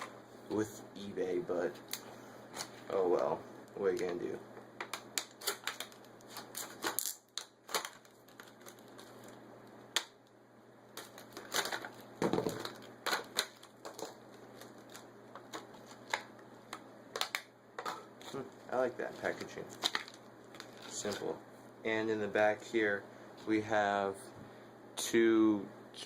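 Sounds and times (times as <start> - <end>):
packaging rustling: 5.0 - 9.4, 11.0 - 21.4.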